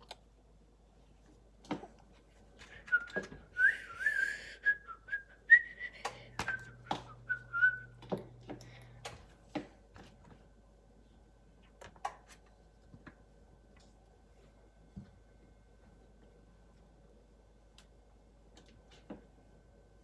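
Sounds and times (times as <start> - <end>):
person whistling a tune: 2.7 - 7.9.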